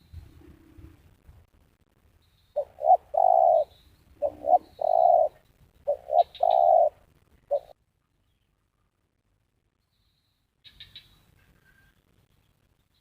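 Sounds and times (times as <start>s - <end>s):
small bird chirping: 2.2s - 8.6s, 9.8s - 13.0s
dove cooing: 2.6s - 7.8s.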